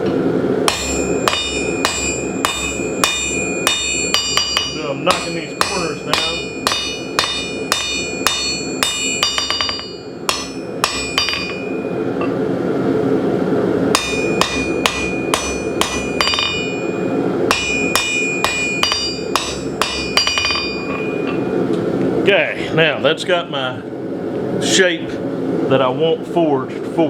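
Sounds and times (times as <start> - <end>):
steady low hum: 0.0 - 27.0
hammer striking steel on anvil: 0.7 - 12.4, 13.9 - 21.6.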